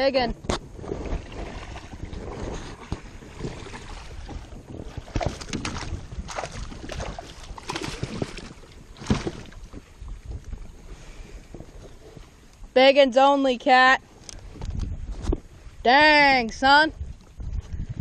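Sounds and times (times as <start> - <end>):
wind rumble on microphone: 0.0 - 18.0
water splashing: 0.8 - 9.8
clatter on kayak: 5.0 - 9.8.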